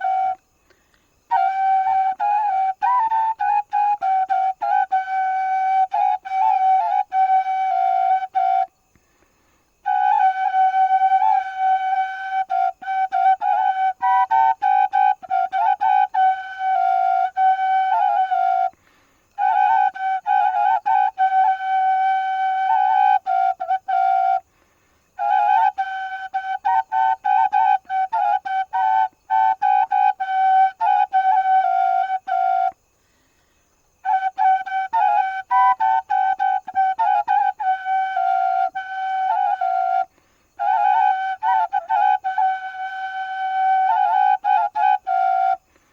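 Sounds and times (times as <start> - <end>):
flute-like solo melody: 0.0 - 0.5, 1.3 - 8.8, 9.8 - 18.8, 19.4 - 24.4, 25.2 - 32.8, 34.0 - 45.7.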